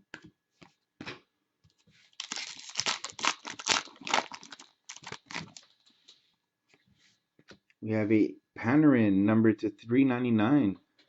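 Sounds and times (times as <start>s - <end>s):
wrapper tearing and crinkling: 2.1s - 5.7s.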